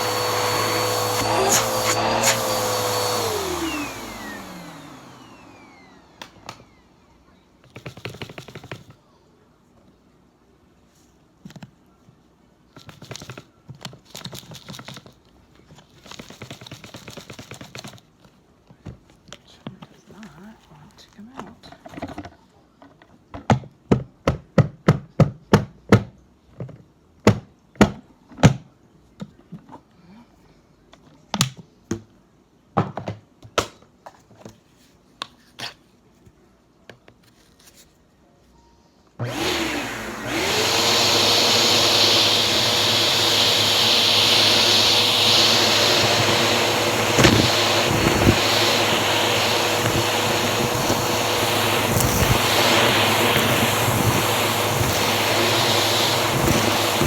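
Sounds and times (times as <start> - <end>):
vacuum cleaner running: 0.0 - 8.9, 39.2 - 57.0.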